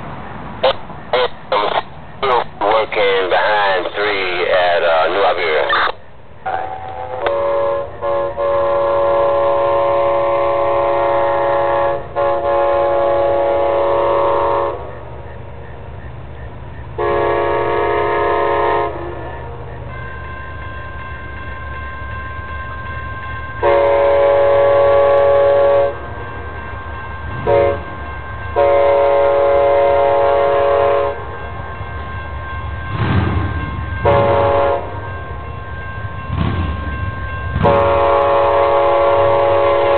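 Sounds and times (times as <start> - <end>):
train rumble: 0.0 - 39.9
train air horn blasts: 6.4 - 15.0, 17.0 - 19.6, 23.6 - 26.3, 27.4 - 28.0, 28.6 - 31.4, 34.0 - 35.2, 37.6 - 39.9.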